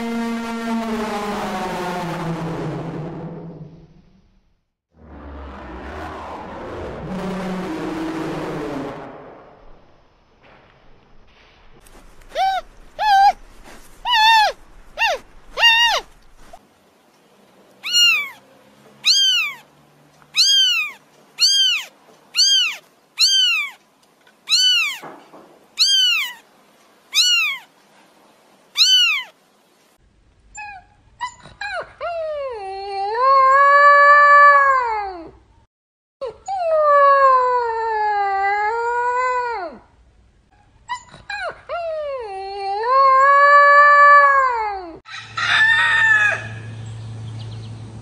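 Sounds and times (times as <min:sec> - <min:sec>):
kittens meowing: 0:12.3 - 0:13.4, 0:14.1 - 0:16.1, 0:17.8 - 0:18.4, 0:19.0 - 0:19.7, 0:20.4 - 0:23.8, 0:24.5 - 0:25.0, 0:25.8 - 0:26.4, 0:27.1 - 0:27.7, 0:28.8 - 0:29.3
puppies whining: 0:12.3 - 0:13.4, 0:14.0 - 0:16.2, 0:17.8 - 0:18.4, 0:19.0 - 0:19.6, 0:20.4 - 0:23.8, 0:24.5 - 0:25.0, 0:25.8 - 0:26.4, 0:27.2 - 0:27.7, 0:28.8 - 0:29.3.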